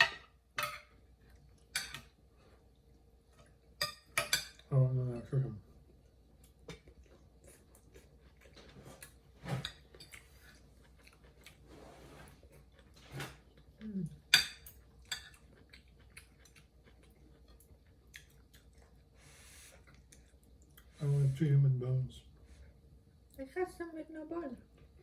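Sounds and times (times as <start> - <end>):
cutlery clinking on plates: 0.0 - 1.0, 1.7 - 2.1, 3.8 - 4.7.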